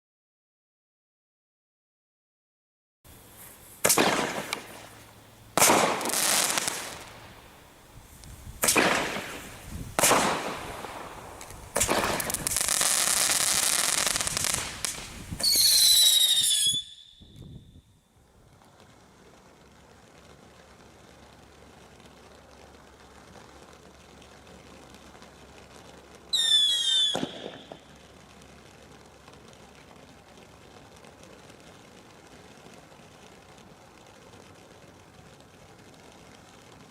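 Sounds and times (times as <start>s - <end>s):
rushing hiss: 3.1s - 16.8s
firework bangs: 3.1s - 17.8s, 24.6s - 33.6s
high falling whistle: 15.4s - 17.8s.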